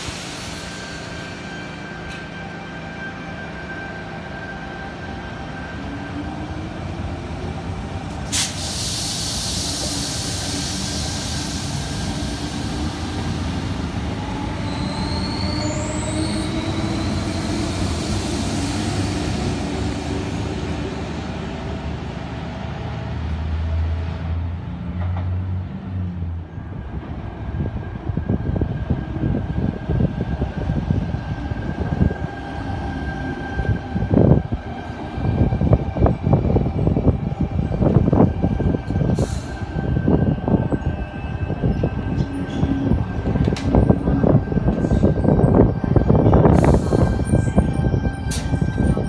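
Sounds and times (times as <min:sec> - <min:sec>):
low hum of approaching train: 0:00.0 - 0:49.0
train rolling noise: 0:00.0 - 0:49.0
hiss: 0:08.3 - 0:12.8
high wheel squeals: 0:14.6 - 0:17.5.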